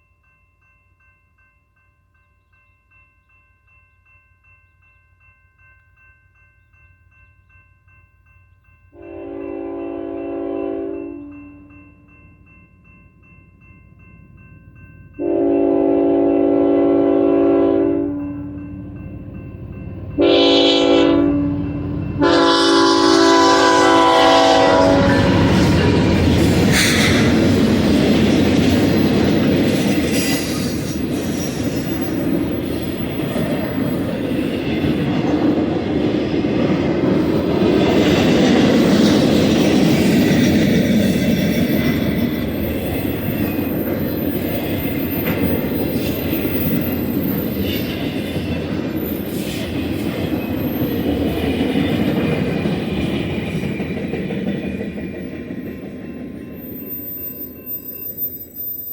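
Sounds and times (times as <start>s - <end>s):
freight train rumbling past: 8.2s - 58.9s
locomotive air horn chord: 9.0s - 11.6s, 15.2s - 18.3s, 20.2s - 25.7s
rail clatter: 21.8s - 57.2s.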